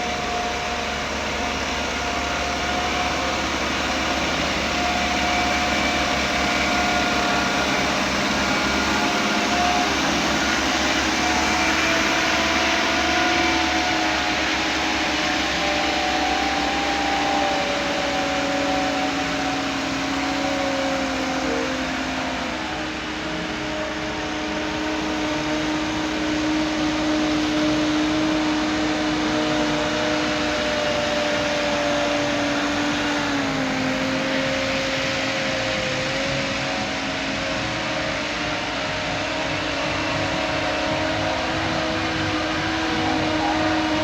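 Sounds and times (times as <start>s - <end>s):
heavy machinery engine whining: 0.0s - 44.0s.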